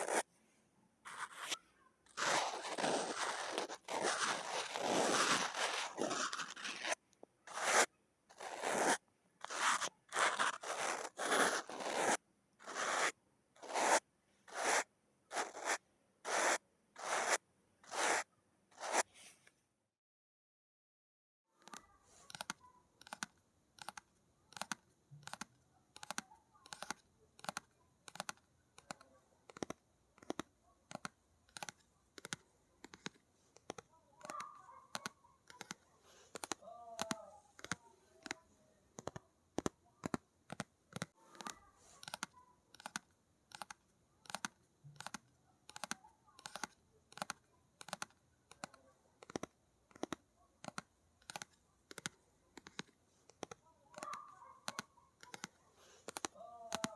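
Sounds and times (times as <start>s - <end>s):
faint scratching: 0.0s - 0.3s, 1.1s - 19.4s.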